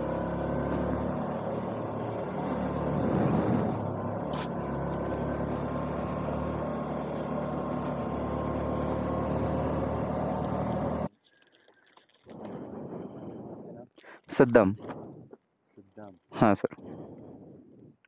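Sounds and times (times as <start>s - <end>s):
motorcycle engine running: 0.0s - 11.1s
riding wind noise: 1.6s - 4.9s, 12.2s - 15.4s, 16.3s - 18.0s.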